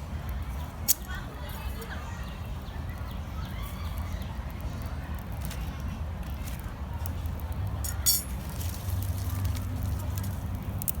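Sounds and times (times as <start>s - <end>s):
bonfire crackling and popping: 2.9s - 11.0s.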